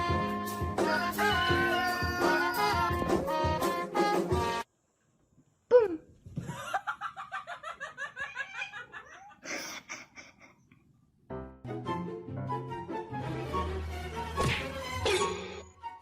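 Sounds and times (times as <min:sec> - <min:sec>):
person crying out: 0:01.5 - 0:02.8
person laughing hard: 0:06.4 - 0:10.7.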